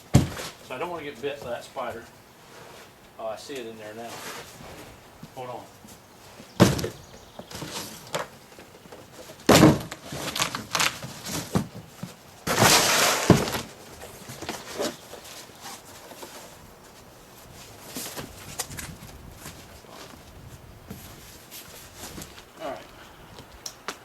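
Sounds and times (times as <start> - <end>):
knocks and thumps on box: 0.1 - 0.6, 6.6 - 8.3, 9.5 - 10.0, 11.0 - 13.7
cardboard scraping and rustling: 4.0 - 5.0, 6.6 - 20.3.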